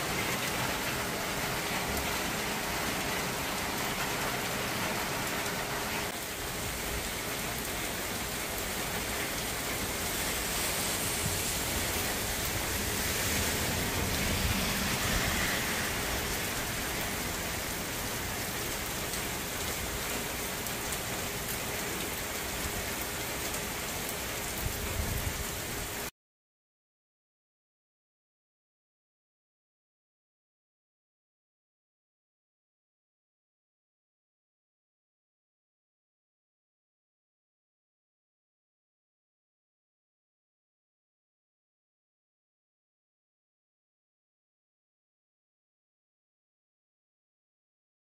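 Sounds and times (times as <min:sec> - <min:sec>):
rain falling on pavement: 0:00.0 - 0:26.1.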